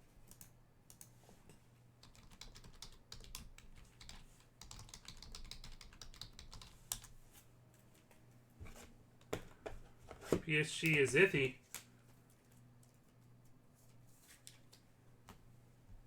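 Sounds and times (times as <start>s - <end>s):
typing on keyboard: 0.2s - 1.1s, 2.0s - 7.1s.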